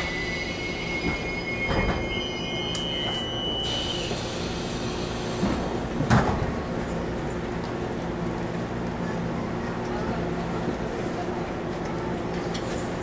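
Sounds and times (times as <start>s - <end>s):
two-tone brake squeal: 0.0s - 4.7s
train hum at standstill: 0.0s - 13.0s.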